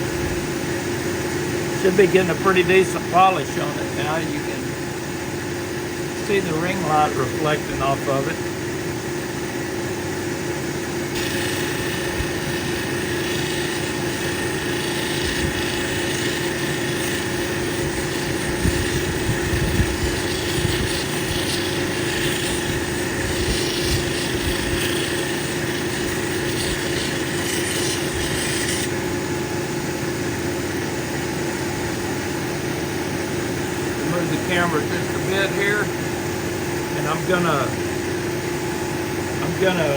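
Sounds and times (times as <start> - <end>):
polishing machine motor hum: 0.0 - 39.9
stone rubbing on polishing wheel: 11.1 - 29.0.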